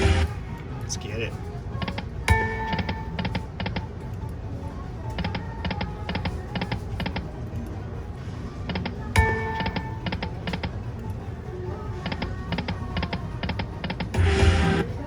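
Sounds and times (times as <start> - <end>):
slot machine music: 0.0 - 15.0
slot machine reel clicks: 1.8 - 3.9, 12.0 - 15.0.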